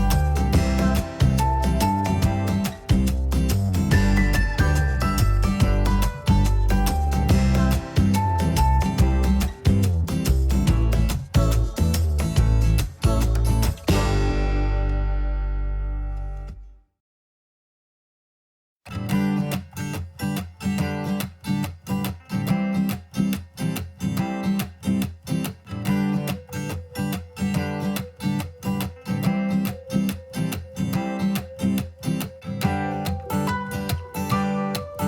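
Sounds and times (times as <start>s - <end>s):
acoustic guitar strumming: 0.0s - 16.6s, 19.0s - 35.0s.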